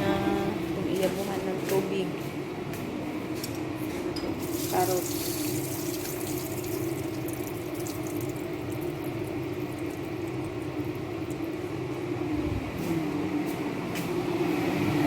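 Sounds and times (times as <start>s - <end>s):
steady low hum: 0.0s - 15.0s
sauce simmering in a pan: 5.1s - 11.9s.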